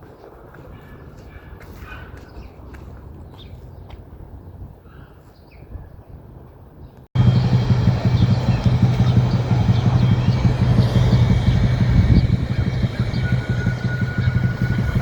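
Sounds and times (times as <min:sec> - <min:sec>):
street traffic with engine hum: 0:07.1 - 0:15.0.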